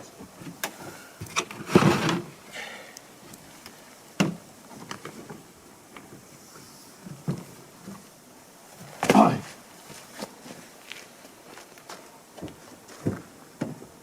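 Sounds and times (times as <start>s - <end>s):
scraping rustle: 0.4s - 2.3s.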